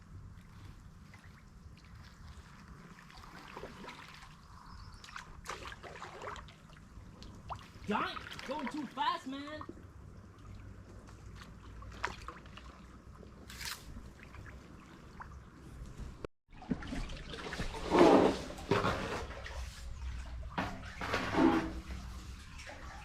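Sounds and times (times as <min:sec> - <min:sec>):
paddle stroke splashes: 0:00.0 - 0:15.7.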